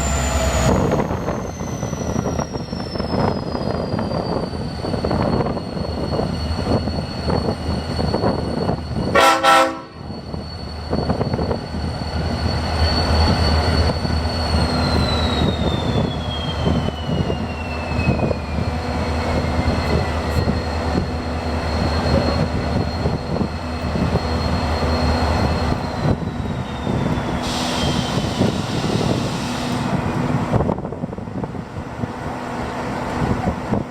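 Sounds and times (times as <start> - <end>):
locomotive engine rumble and whine: 0.0 - 33.9
locomotive horn blast: 9.1 - 10.1.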